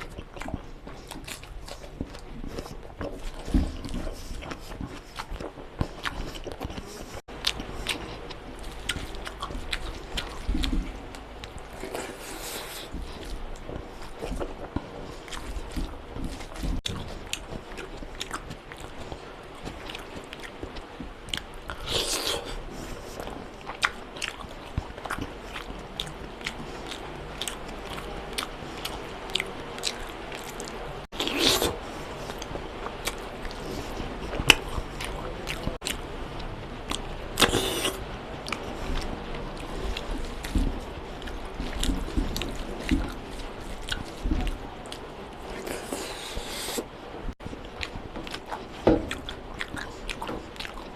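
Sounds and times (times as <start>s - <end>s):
person chewing food: 0.0s - 50.9s.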